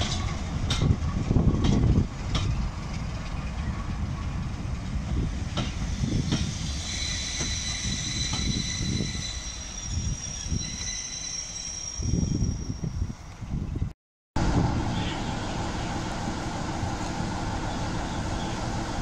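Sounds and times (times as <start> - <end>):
wheels clicking over rail joints: 0.0 - 6.5
train coaches rumbling past: 0.0 - 19.0
high wheel squeal: 5.8 - 13.2.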